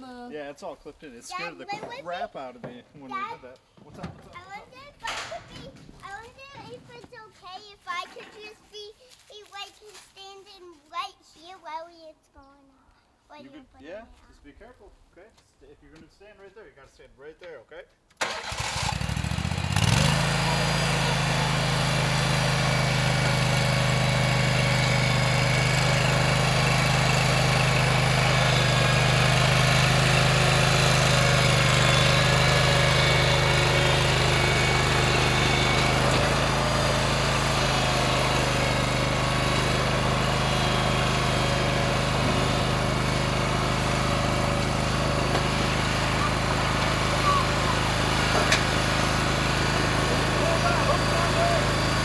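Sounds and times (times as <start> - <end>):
stump grinder engine: 18.2 - 52.0.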